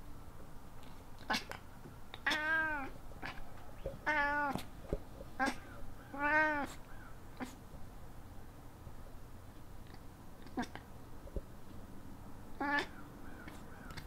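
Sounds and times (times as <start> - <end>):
cat meowing: 2.2 - 3.4, 4.0 - 4.6, 5.4 - 6.8, 12.6 - 13.0
cat chirping: 2.2 - 4.7, 5.4 - 7.6, 12.5 - 14.0.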